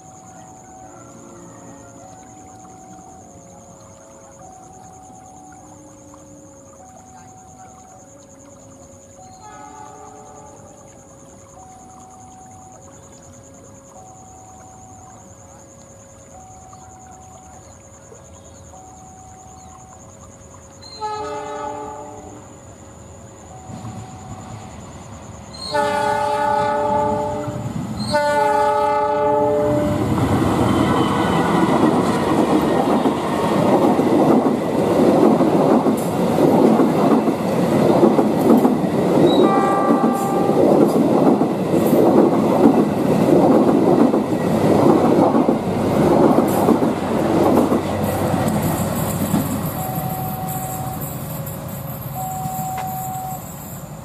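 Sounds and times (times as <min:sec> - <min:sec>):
locomotive horn blasts: 0:09.4 - 0:10.6, 0:20.9 - 0:22.5, 0:25.6 - 0:31.7, 0:39.3 - 0:40.7
train wheels clattering over rails: 0:30.0 - 0:53.6.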